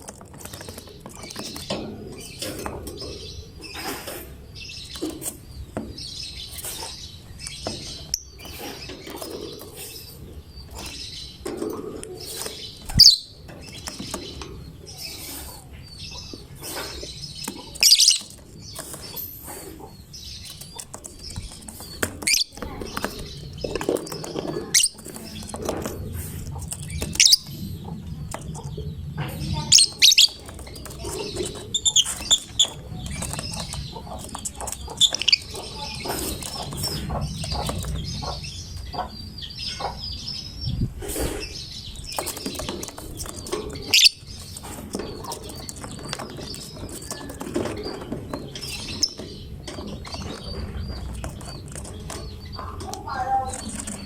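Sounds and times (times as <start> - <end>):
bird chirping: 0.0 - 54.0.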